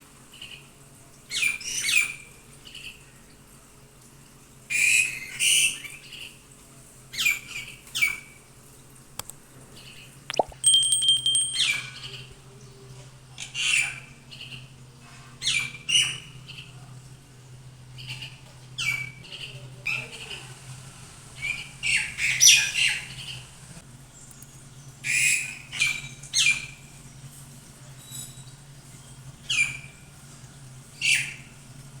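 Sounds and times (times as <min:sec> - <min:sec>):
small bird chirping: 0:10.3 - 0:11.7.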